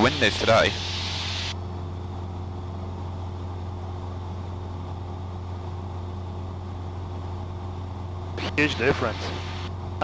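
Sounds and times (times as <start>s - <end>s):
airplane engine droning in cabin: 0.0s - 10.0s.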